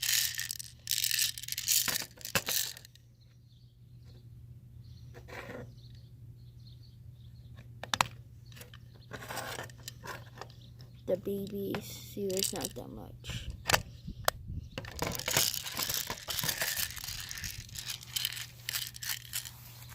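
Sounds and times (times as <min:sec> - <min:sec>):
rustling: 0:15.0 - 0:19.9.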